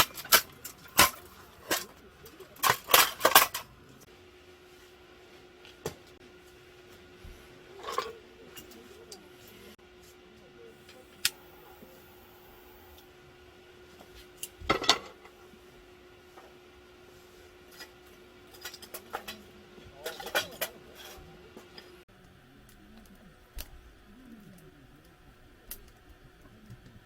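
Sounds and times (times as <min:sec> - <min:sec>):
dishes and utensils clinking: 0:00.0 - 0:03.7, 0:07.7 - 0:09.0, 0:14.6 - 0:15.3, 0:18.5 - 0:21.9.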